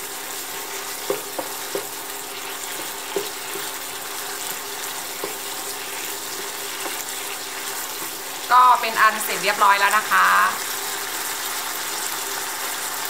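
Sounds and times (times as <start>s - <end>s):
meat paste sizzling in a pan: 0.0s - 13.0s
spatula knocking against pan: 1.0s - 2.0s, 2.7s - 3.6s, 5.1s - 5.5s.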